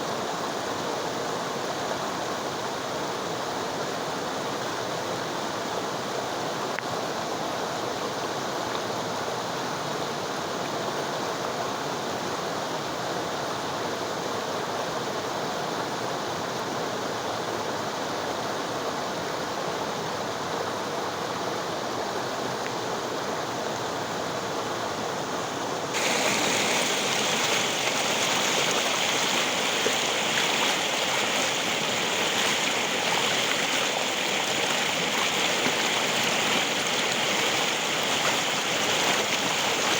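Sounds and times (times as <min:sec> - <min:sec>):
river water rushing: 0:23.2 - 0:39.9.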